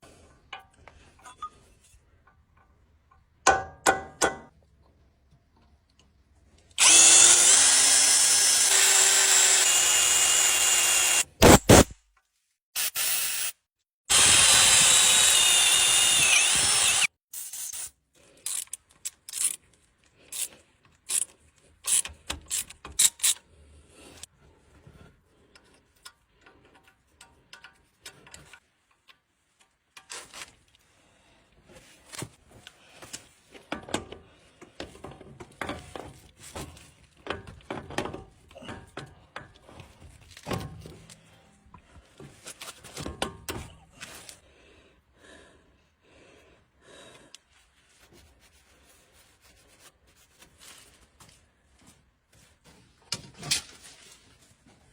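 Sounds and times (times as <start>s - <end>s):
power tool running: 6.8s - 11.9s, 14.1s - 17.1s
tool handling clicks and knocks: 25.5s - 30.6s, 33.0s - 41.6s, 42.2s - 44.1s.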